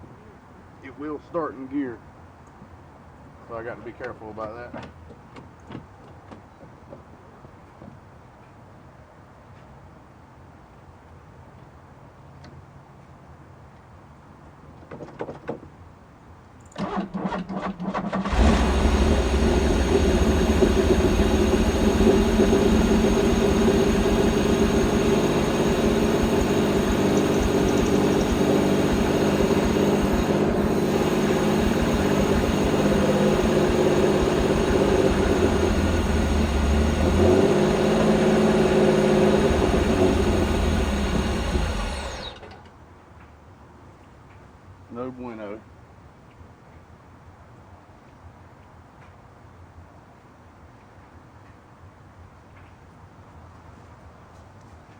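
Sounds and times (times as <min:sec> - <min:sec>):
starter cranking engine: 0:16.7 - 0:42.7
car engine running: 0:18.2 - 0:42.6.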